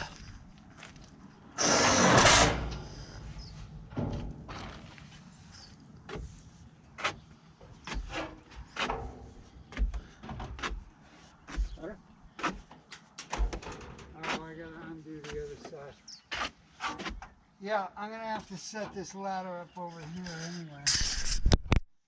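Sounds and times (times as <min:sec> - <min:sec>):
loud rasping burst: 0:01.6 - 0:03.2.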